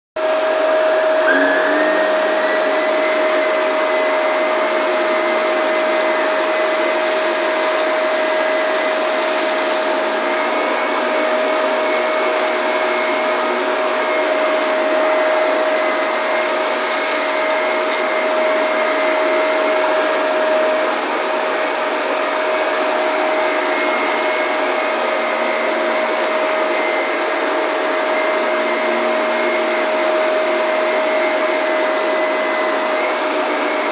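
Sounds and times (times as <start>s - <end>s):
vacuum cleaner motor whine: 0.2s - 33.9s
higher hiss: 1.3s - 14.7s.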